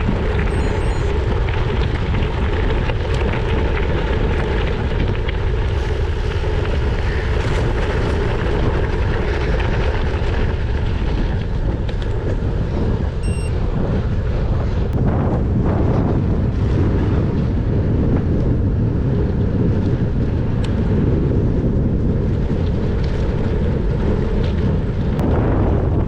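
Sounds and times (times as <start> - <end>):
tyres rolling over gravel: 0.0 - 13.2
wind buffeting microphone: 0.0 - 26.0
short high beep: 0.5 - 1.1, 13.2 - 13.6.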